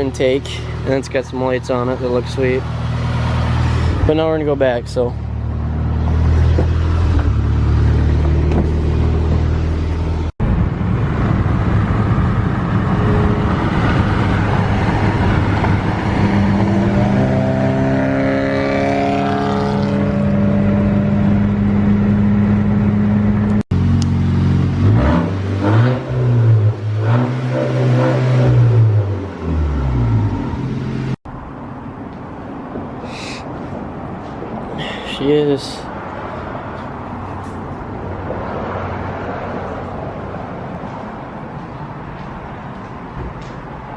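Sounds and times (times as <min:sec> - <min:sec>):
car exhaust rumble and revving: 0:00.0 - 0:31.4.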